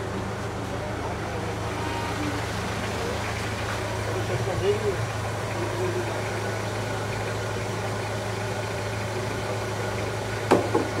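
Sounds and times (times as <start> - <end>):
car engine idling: 0.0 - 11.0
short knock: 10.5 - 11.0.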